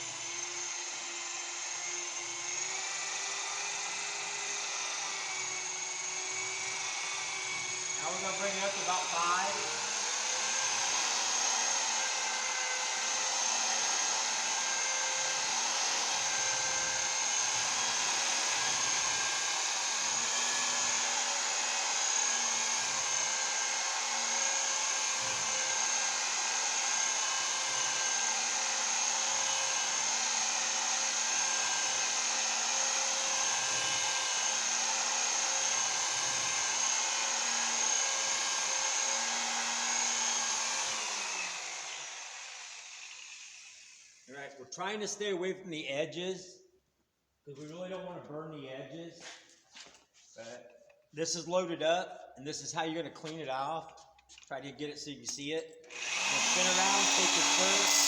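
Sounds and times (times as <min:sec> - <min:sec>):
rotary buffer motor whine: 0:55.9 - 0:58.0.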